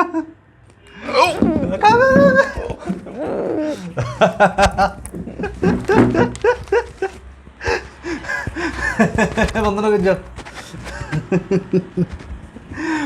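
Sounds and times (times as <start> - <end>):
person making wordless sounds: 1.0 - 11.2.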